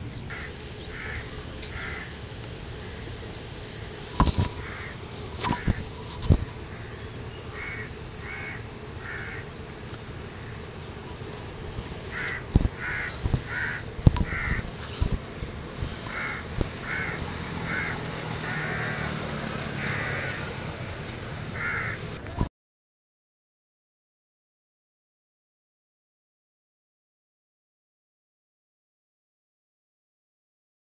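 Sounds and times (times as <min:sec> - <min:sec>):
bird giving harsh calls: 0:00.3 - 0:02.2, 0:06.6 - 0:09.6, 0:12.1 - 0:14.7, 0:16.1 - 0:19.1, 0:21.6 - 0:22.0.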